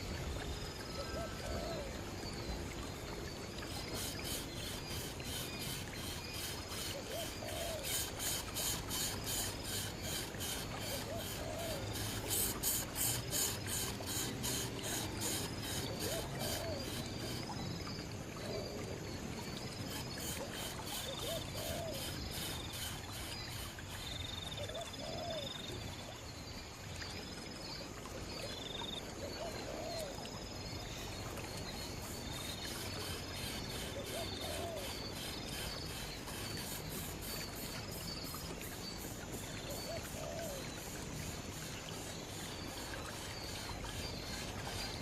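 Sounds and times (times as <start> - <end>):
outdoor background noise: 0.0 - 45.0.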